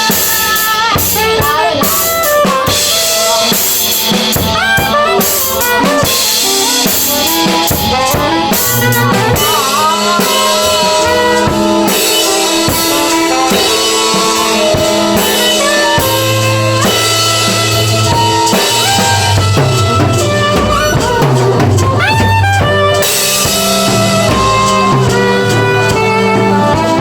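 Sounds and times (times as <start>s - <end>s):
drum kit playing: 0.0s - 27.0s
held and sliding instrument notes: 16.0s - 27.0s.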